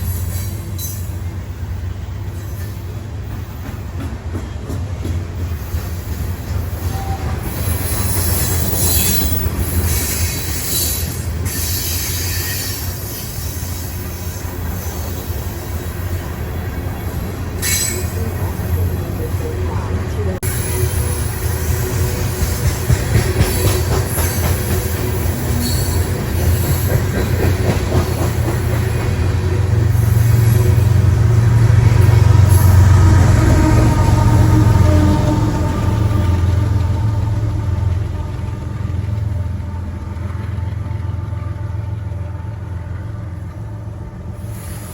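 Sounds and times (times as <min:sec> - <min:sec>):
train rumbling on rails: 0:00.0 - 0:44.9
high-pitched wheel squeal: 0:06.8 - 0:14.0.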